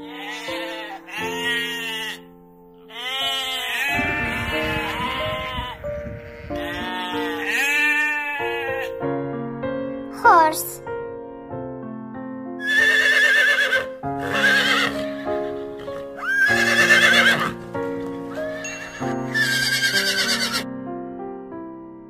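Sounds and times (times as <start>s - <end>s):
horses whinnying: 0.0s - 2.2s, 2.9s - 8.9s, 12.6s - 20.6s
background music: 0.0s - 22.0s.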